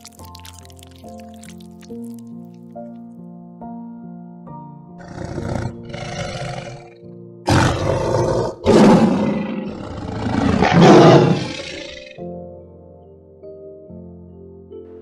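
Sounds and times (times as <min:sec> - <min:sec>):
soft background music: 0:00.0 - 0:15.0
animal rough noisy calls: 0:07.5 - 0:12.1.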